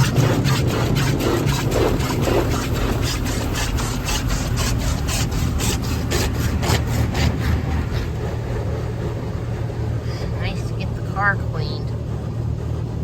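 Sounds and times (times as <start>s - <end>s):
car wash brushes slapping car: 0.0s - 9.6s
steady low rumble: 0.0s - 13.0s.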